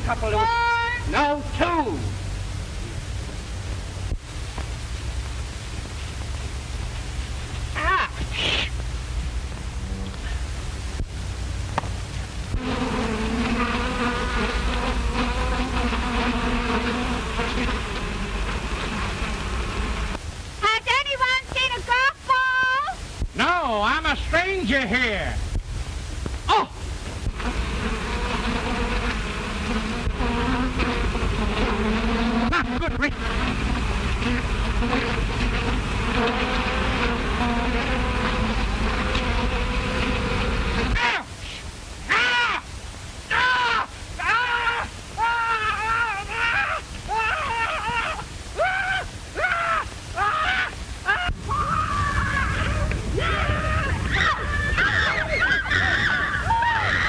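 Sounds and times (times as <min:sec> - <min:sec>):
low steady hum: 0:00.0 - 0:42.1
bees buzzing: 0:12.3 - 0:20.2, 0:27.2 - 0:41.0.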